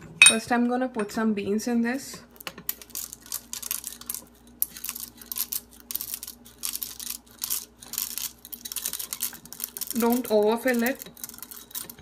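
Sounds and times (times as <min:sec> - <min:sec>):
coffee beans pouring into grinder: 0:02.7 - 0:12.0.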